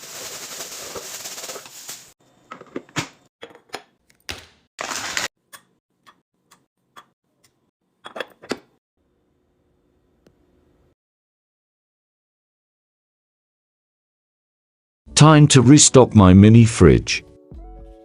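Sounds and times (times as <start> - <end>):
packaging rustling: 4.8 - 5.3.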